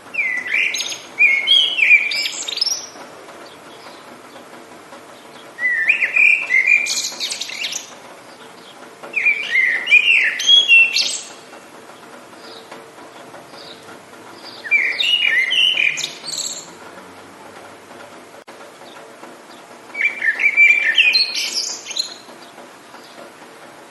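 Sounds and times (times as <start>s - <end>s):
rain hiss: 0.0s - 23.9s
songbird warbling: 0.1s - 4.5s, 5.1s - 11.5s, 14.4s - 16.8s, 19.5s - 23.2s.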